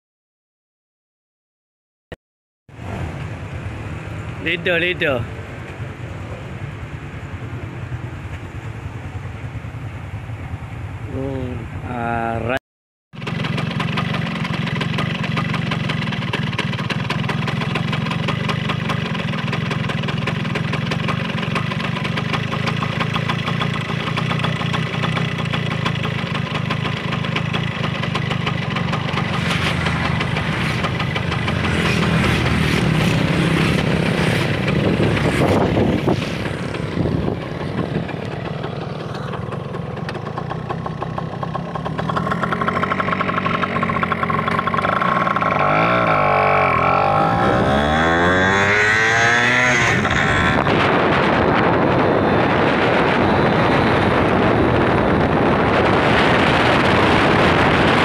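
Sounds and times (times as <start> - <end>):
traffic noise: 2.7 - 12.6, 13.2 - 58.0
motorcycle engine running: 13.2 - 58.0
wind noise on microphone: 29.3 - 38.6, 46.7 - 58.0.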